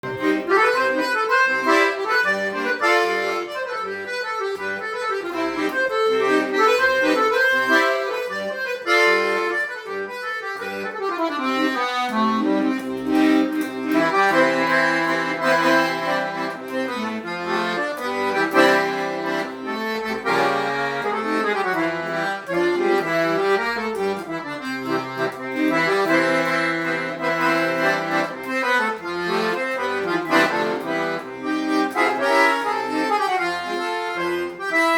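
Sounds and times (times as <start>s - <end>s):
accordion playing: 0.0s - 34.9s.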